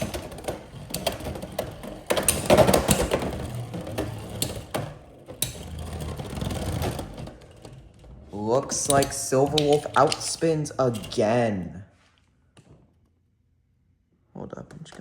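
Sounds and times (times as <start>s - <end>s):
loud rattling scrape: 0.0s - 11.5s.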